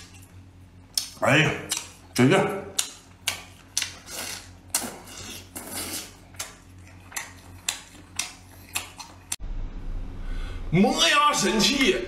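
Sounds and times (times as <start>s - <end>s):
wet chewing and crunching: 0.0s - 9.4s.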